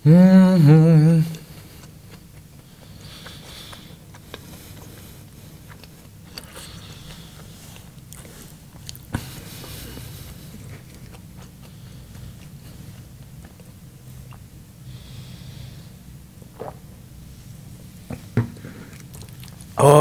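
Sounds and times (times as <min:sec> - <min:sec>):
chewing and mouth sounds: 0:01.3 - 0:14.5, 0:16.6 - 0:17.0, 0:18.8 - 0:19.8.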